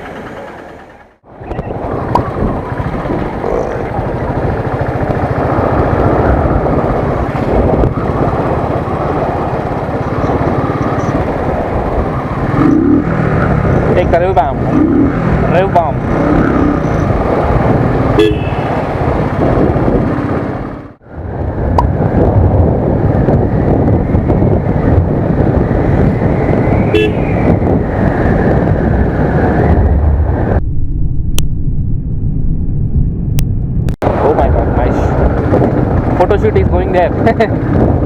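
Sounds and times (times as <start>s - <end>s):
motorcycle engine revving: 0.0s - 21.0s
road and wind noise: 0.0s - 38.0s
horn toots: 18.1s - 18.8s, 26.9s - 27.5s.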